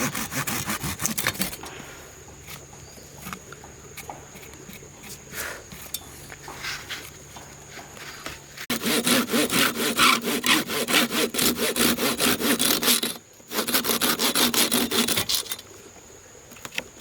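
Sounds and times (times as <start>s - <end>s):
hand saw cutting wood: 0.0s - 1.8s, 8.6s - 15.6s.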